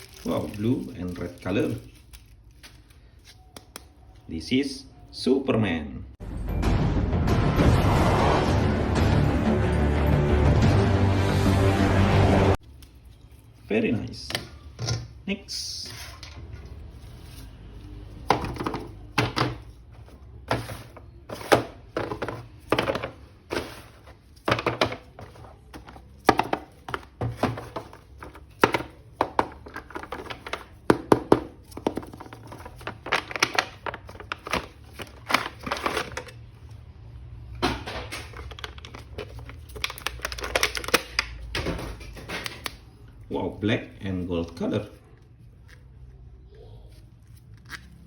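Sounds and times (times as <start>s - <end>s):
plastic toys clicking and knocking: 18.2s - 19.7s, 24.4s - 36.5s, 37.6s - 42.8s.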